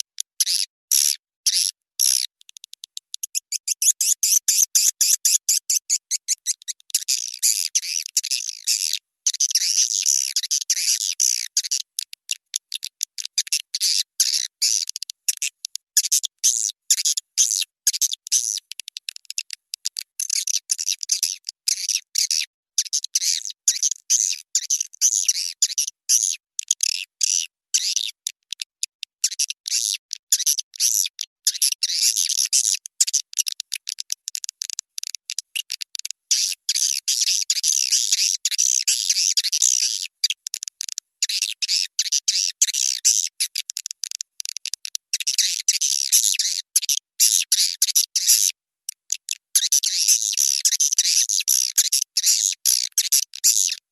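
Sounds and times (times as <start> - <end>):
swiftlet chirping twitters: 3.1 - 11.8.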